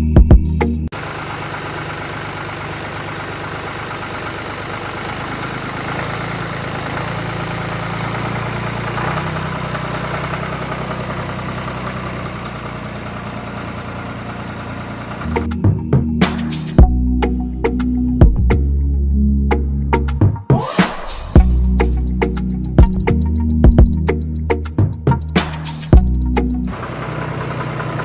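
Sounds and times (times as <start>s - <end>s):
small engine running: 0.9s - 15.5s, 21.3s - 24.0s, 24.8s - 28.0s.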